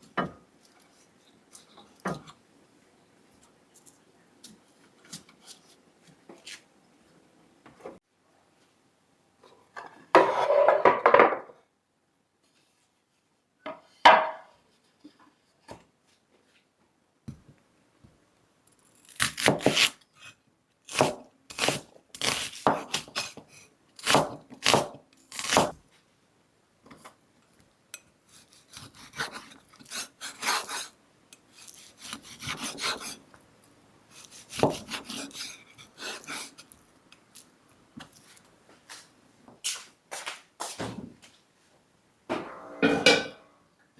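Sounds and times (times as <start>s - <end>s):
knife slicing on cutting board: 34.2s - 36.6s.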